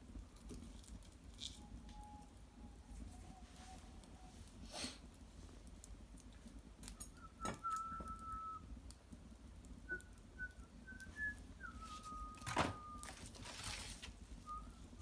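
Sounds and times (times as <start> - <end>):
wood fire crackling and popping: 0.0 - 15.0
thin steam whistle from wood: 1.6 - 5.0, 7.0 - 8.7, 9.9 - 15.0.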